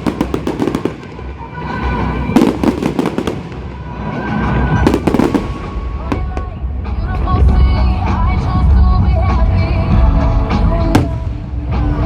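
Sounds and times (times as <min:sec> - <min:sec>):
fireworks crackling bangs: 0:00.0 - 0:06.8.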